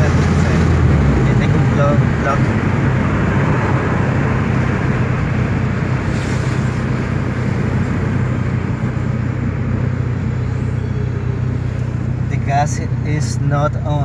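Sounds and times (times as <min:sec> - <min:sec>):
car engine droning: 0:00.0 - 0:14.0
road noise: 0:00.0 - 0:14.0.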